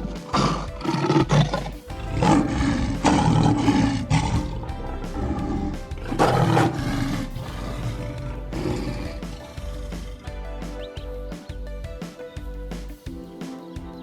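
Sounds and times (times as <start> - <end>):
tiger roaring and growling: 0.0 - 10.3
background music: 0.0 - 14.0.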